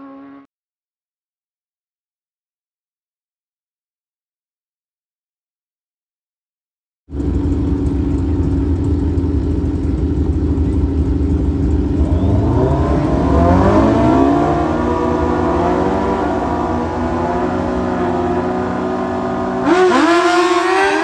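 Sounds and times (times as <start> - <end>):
drag racing engine accelerating: 7.1 - 21.0.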